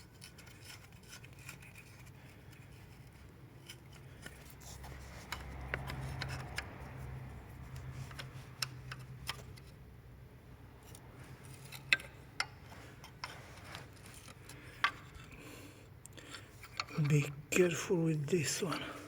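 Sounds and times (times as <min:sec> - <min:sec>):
low steady hum: 0:00.0 - 0:19.0
clicks and taps of engine parts: 0:03.6 - 0:09.7.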